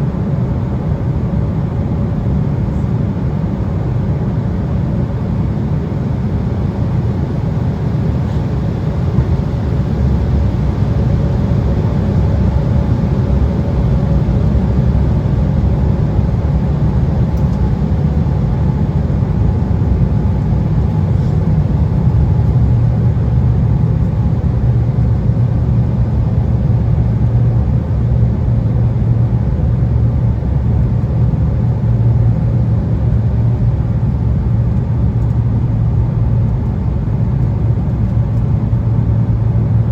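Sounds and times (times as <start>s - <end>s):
jet cabin engine and airflow roar: 0.0s - 39.9s.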